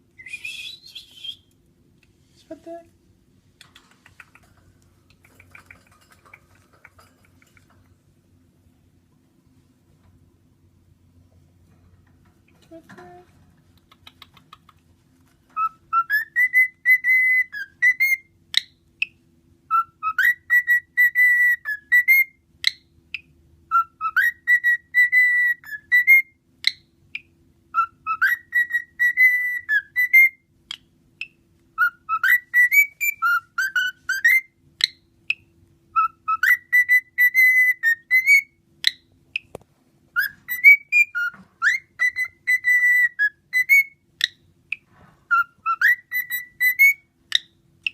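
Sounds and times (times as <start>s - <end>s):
cockatiel whistling a tune: 0.2s - 1.6s, 15.6s - 18.7s, 19.7s - 22.4s, 23.7s - 26.8s, 27.7s - 30.4s, 31.8s - 35.0s, 35.9s - 39.0s, 40.2s - 47.9s.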